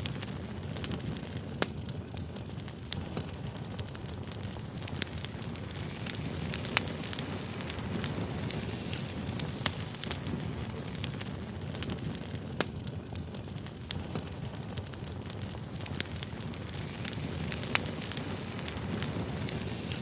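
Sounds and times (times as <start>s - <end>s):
firewood crackling and popping: 0.0s - 20.0s
low rumble of flames: 0.0s - 20.0s.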